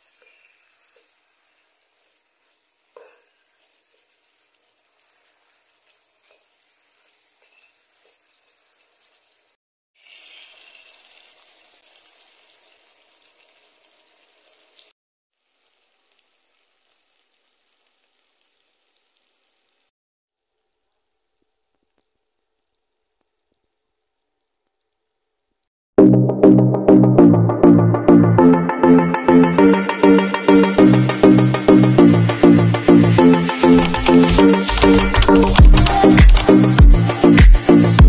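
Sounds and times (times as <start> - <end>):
meat sizzling in a pan: 0.0 - 25.7.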